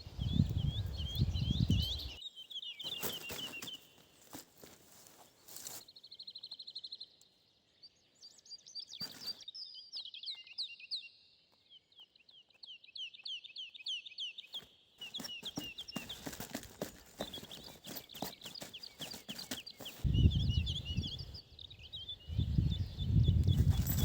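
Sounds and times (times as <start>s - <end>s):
songbird trill: 0.0s - 24.0s
rustling noise: 2.8s - 5.9s, 15.0s - 20.2s, 23.5s - 24.0s.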